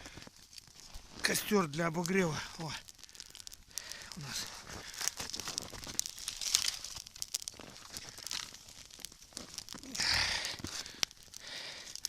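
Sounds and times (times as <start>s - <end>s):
campfire crackling and popping: 0.0s - 12.0s
rustle: 0.0s - 12.0s.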